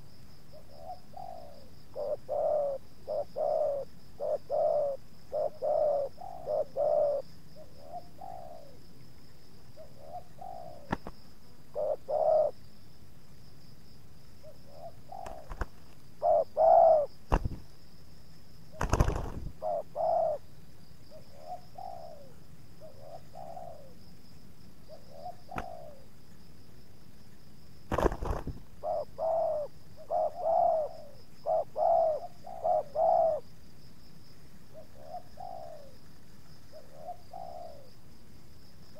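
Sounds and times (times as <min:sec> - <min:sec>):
doves cooing: 0:00.6 - 0:08.8, 0:09.8 - 0:11.1, 0:11.7 - 0:12.6, 0:14.4 - 0:17.7, 0:18.7 - 0:20.5, 0:21.1 - 0:24.0, 0:24.9 - 0:26.1, 0:27.9 - 0:33.5, 0:34.7 - 0:36.0, 0:36.7 - 0:37.9.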